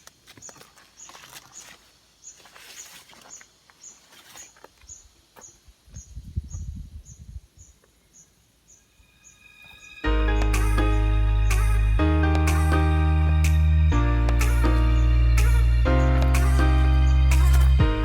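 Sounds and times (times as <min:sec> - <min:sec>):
high chirping call: 0:06.1 - 0:18.0
loud music: 0:10.0 - 0:18.0.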